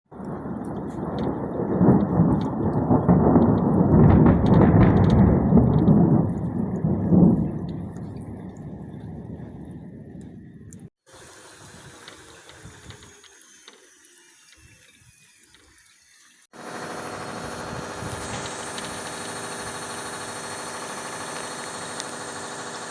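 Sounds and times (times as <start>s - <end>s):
thunder rumbling: 0.1s - 10.9s.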